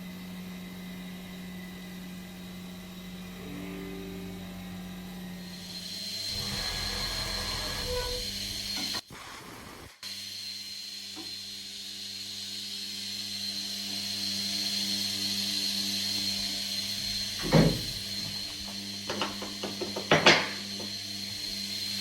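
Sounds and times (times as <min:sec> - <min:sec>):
milling machine spindle whine: 0:00.1 - 0:09.0, 0:10.4 - 0:22.0
low hum: 0:03.2 - 0:05.6.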